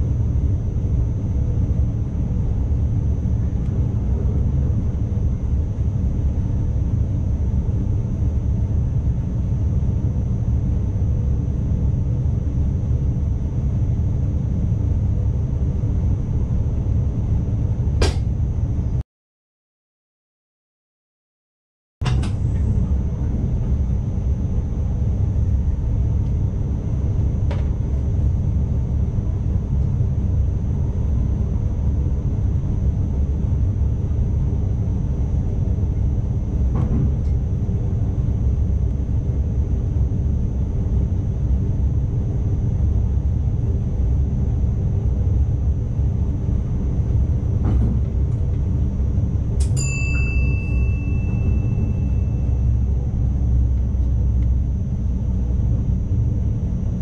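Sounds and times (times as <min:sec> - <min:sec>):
electric train rumbling: 0:00.0 - 0:19.0, 0:22.0 - 0:57.0
thin high whine: 0:49.7 - 0:53.6.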